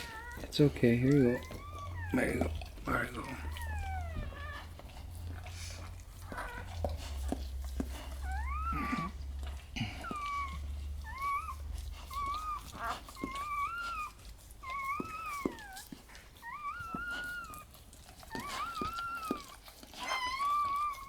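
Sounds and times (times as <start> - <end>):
puppy whining: 0.0 - 21.0.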